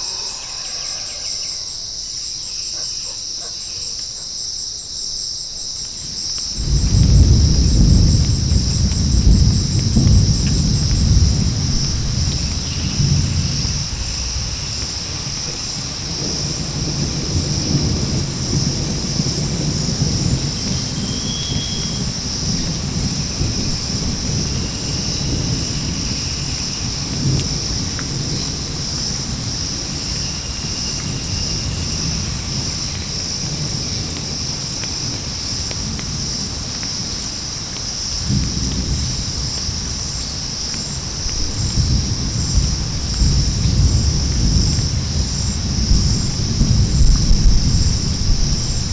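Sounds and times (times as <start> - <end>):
low rolling thunder: 0.0 - 2.2, 6.1 - 36.8, 38.1 - 48.9
high insect drone: 0.0 - 48.9
rain: 0.0 - 48.9.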